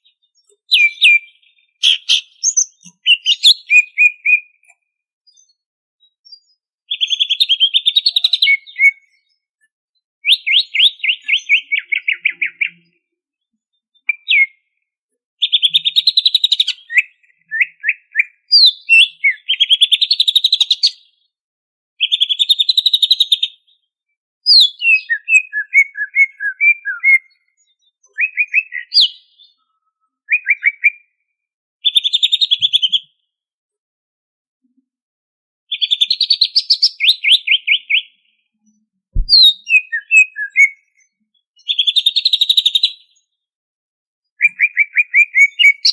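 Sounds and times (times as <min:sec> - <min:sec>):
bird singing rapid chattering phrases: 0:00.0 - 0:04.6, 0:06.9 - 0:09.3, 0:10.2 - 0:13.0, 0:14.0 - 0:14.7, 0:15.4 - 0:21.1, 0:22.0 - 0:23.7, 0:24.5 - 0:29.6, 0:31.8 - 0:33.0, 0:35.7 - 0:38.3, 0:39.2 - 0:43.1, 0:44.4 - 0:45.9.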